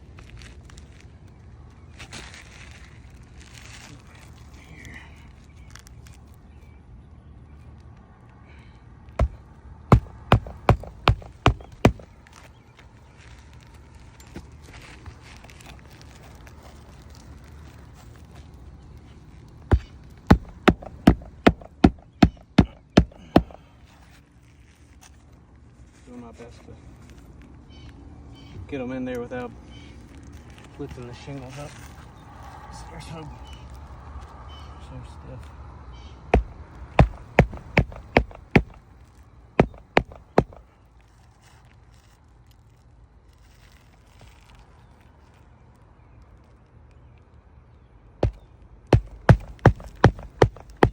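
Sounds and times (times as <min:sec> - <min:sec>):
hammer striking nail into shingle: 0:09.2 - 0:12.2, 0:19.7 - 0:23.6, 0:36.4 - 0:38.8, 0:39.6 - 0:40.6, 0:48.2 - 0:48.4, 0:49.0 - 0:50.9.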